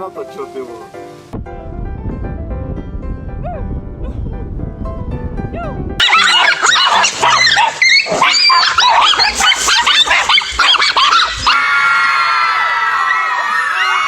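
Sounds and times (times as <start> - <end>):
dogs barking and yelping: 6.0 - 12.2
people shouting: 9.7 - 14.0.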